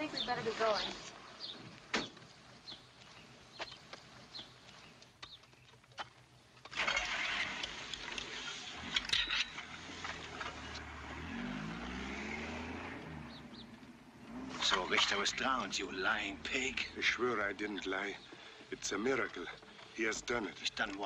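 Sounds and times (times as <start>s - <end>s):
outdoor background hiss: 0.0s - 21.0s
car engine running: 9.6s - 20.2s.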